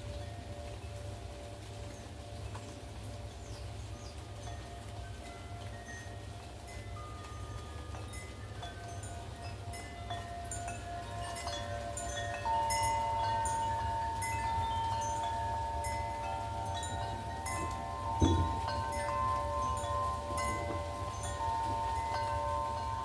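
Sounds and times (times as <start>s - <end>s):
wind chimes ringing: 0.0s - 23.0s
low wind rumble: 8.7s - 23.0s.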